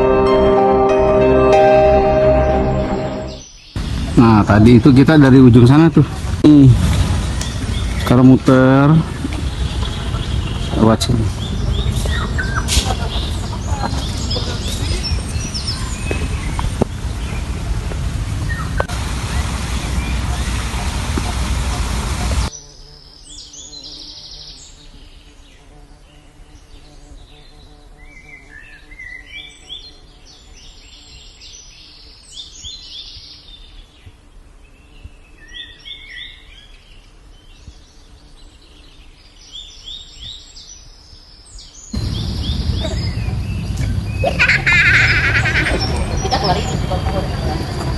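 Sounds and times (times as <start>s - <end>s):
birds chirping: 0.0s - 47.9s
loud rushing noise: 2.2s - 8.2s, 42.0s - 47.9s.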